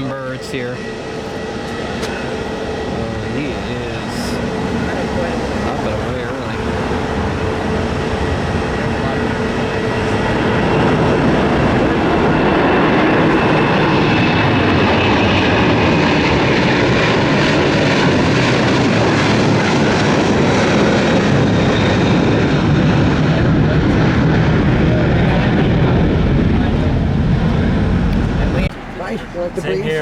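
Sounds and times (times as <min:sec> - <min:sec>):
faint high whine: 0:00.0 - 0:10.5
jet engines at takeoff power: 0:00.0 - 0:30.0.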